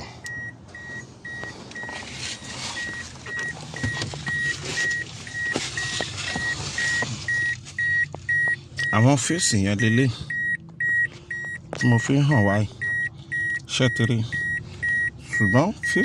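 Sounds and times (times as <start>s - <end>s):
rustling and clicks in car cabin: 0.2s - 8.9s, 10.6s - 12.2s
dashboard warning chime beeping: 0.2s - 16.0s.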